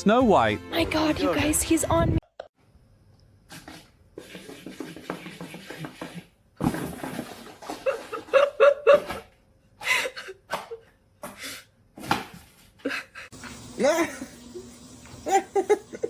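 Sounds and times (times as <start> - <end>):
person laughing: 7.8 - 10.8, 12.8 - 16.0.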